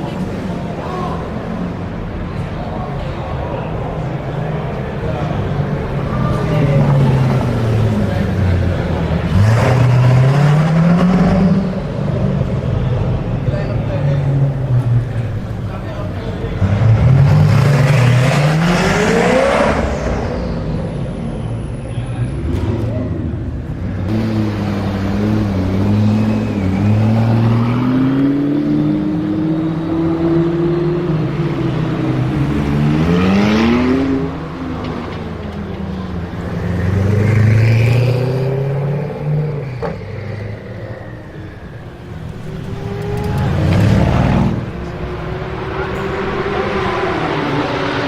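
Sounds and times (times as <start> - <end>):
sports car engine revving: 5.0 - 13.4, 14.2 - 20.8, 22.3 - 35.1.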